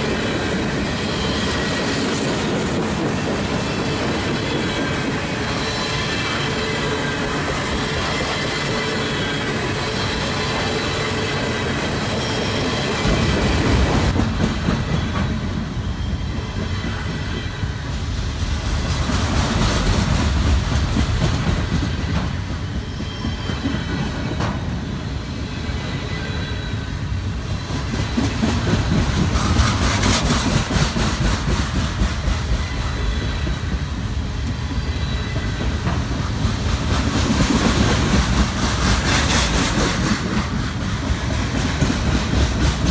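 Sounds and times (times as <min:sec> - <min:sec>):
high wheel squeal: 0:00.0 - 0:18.1, 0:22.0 - 0:30.4, 0:32.4 - 0:36.7
train wheels clicking and rumbling: 0:12.6 - 0:42.9.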